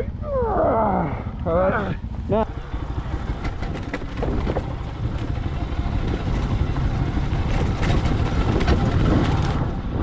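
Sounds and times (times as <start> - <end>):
motorcycle engine rumbling: 0.0 - 10.0.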